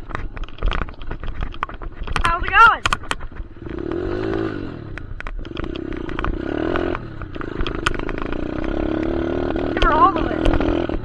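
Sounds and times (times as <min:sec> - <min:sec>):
rattling ticks: 0:00.1 - 0:11.0
dirt bike engine revving: 0:03.5 - 0:11.0.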